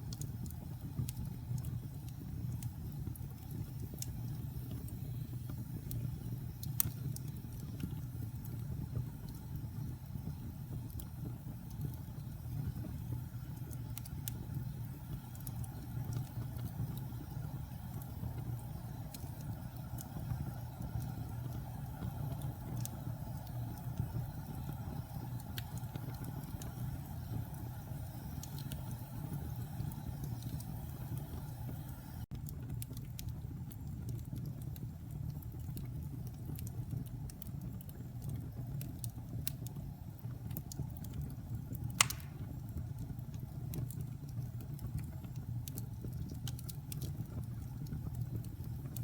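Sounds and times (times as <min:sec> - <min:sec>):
wood fire crackling and popping: 0:00.0 - 0:49.0.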